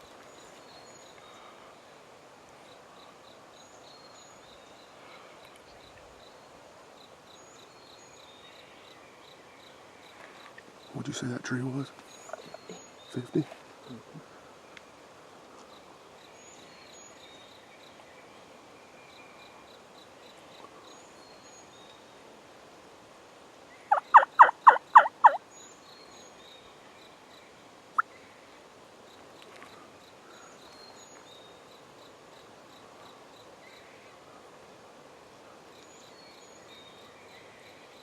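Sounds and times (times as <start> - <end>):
faint songbird chirps: 0.0 - 22.4, 23.6 - 34.8, 35.4 - 38.0
turkey cluck: 23.9 - 25.4
turkey yelps: 23.9 - 25.4.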